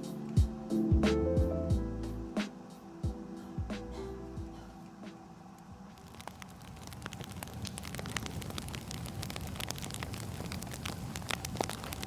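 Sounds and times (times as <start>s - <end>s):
wood fire crackling: 3.6s - 12.0s.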